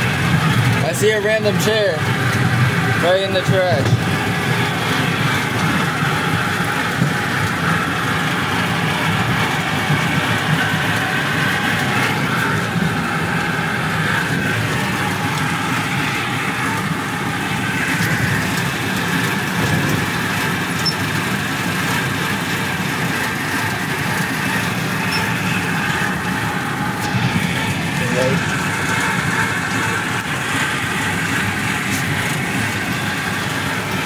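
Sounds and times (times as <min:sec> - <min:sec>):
small train rumbling along track: 0:00.0 - 0:34.0.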